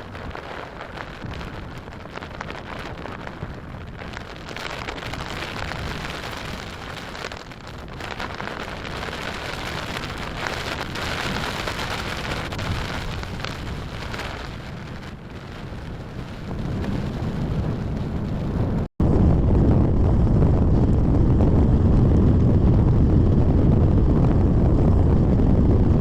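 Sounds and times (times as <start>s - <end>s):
heavy rain falling: 0.0s - 19.6s
gusting wind rumble: 0.0s - 26.0s.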